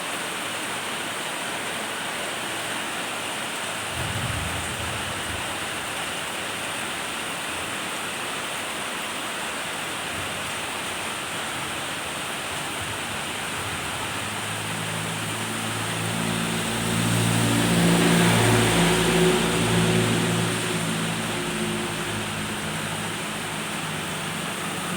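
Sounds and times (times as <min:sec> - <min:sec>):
steady rain falling: 0:00.0 - 0:24.9
vehicle engine hum: 0:12.3 - 0:24.9.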